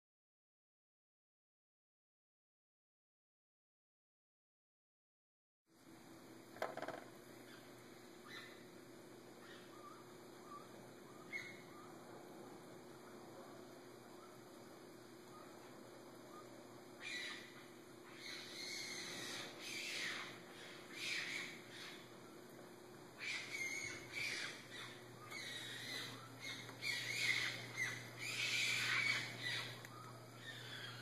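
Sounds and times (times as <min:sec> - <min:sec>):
animal high-pitched scratchy calls: 0:23.2 - 0:31.0.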